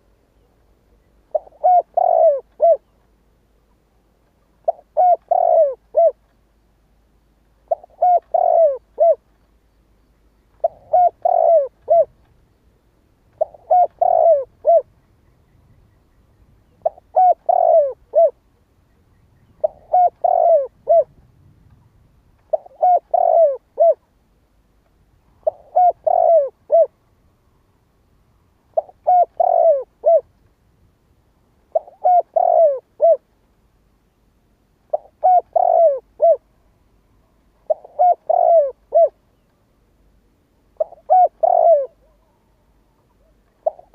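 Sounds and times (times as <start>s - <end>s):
dove cooing: 1.3s - 2.9s, 4.6s - 6.2s, 7.6s - 9.2s, 10.6s - 12.2s, 13.3s - 15.0s, 16.6s - 18.4s, 19.4s - 21.2s, 22.5s - 24.0s, 25.4s - 27.0s, 28.7s - 30.3s, 31.7s - 33.3s, 34.9s - 36.5s, 37.6s - 39.2s, 40.8s - 43.9s.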